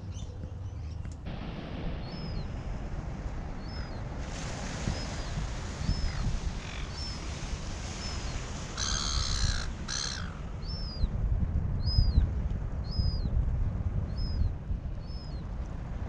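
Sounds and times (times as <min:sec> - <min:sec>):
low steady rumble: 0:00.0 - 0:16.0
loud bird calls: 0:03.6 - 0:04.0, 0:04.9 - 0:07.3, 0:08.0 - 0:11.1.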